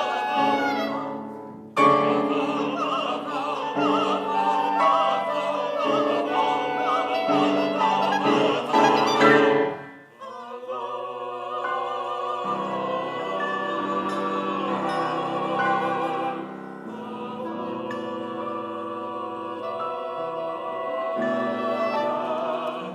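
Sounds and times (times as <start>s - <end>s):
chamber ensemble playing: 0.0s - 10.2s, 11.3s - 22.9s
voices singing together: 0.0s - 22.9s.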